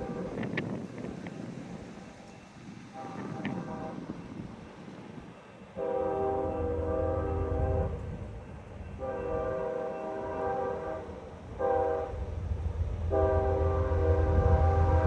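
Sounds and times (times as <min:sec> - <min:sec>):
locomotive air horn blasts: 0:00.0 - 0:00.6, 0:02.9 - 0:04.2, 0:05.8 - 0:08.2, 0:09.0 - 0:12.2, 0:13.1 - 0:15.0
train rumbling: 0:00.0 - 0:15.0.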